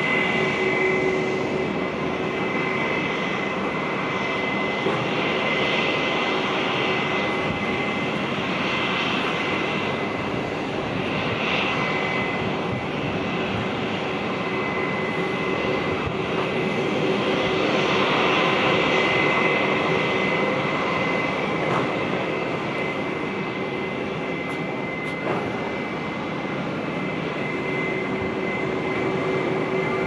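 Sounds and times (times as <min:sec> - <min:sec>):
high steady engine whine: 0:00.0 - 0:30.0
jet engines rushing: 0:00.0 - 0:30.0.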